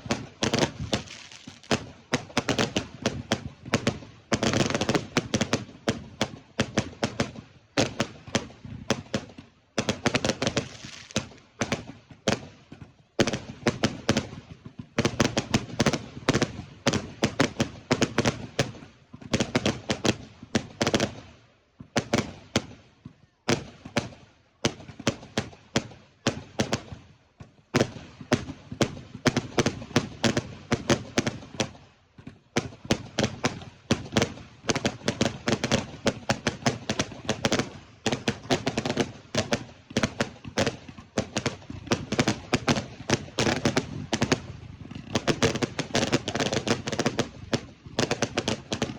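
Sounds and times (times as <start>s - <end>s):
fireworks bangs: 0.0s - 48.9s.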